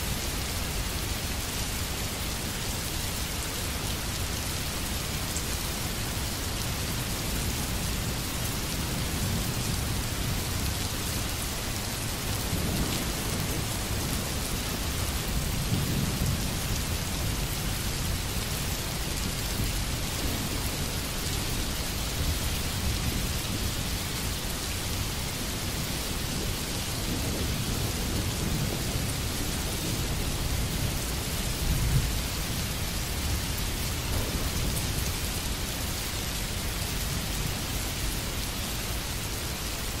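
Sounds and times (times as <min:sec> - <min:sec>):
steady rain hiss: 0:00.0 - 0:40.0
low thunder rumbles: 0:12.0 - 0:21.1, 0:25.5 - 0:35.7.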